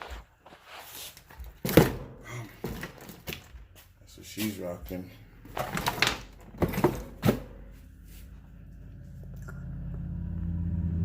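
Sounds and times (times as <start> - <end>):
plastic knocks and clatters: 5.5 - 7.6.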